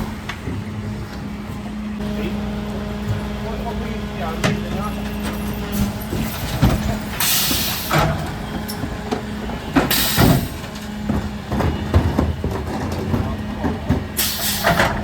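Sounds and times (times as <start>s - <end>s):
refuse truck humming: 0.0s - 15.0s
loud air hisses: 7.2s - 8.1s, 9.9s - 10.6s, 14.2s - 14.8s.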